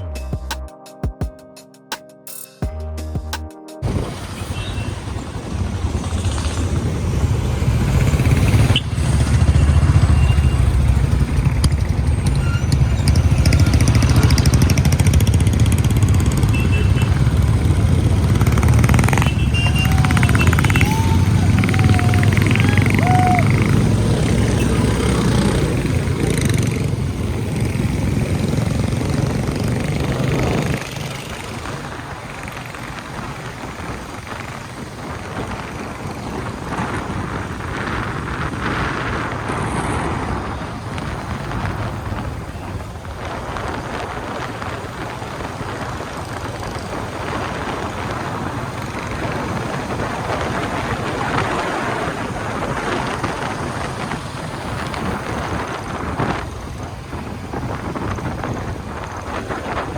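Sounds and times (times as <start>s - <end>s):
motorcycle engine rumble: 3.2s - 59.9s
wind and road noise: 3.2s - 59.9s.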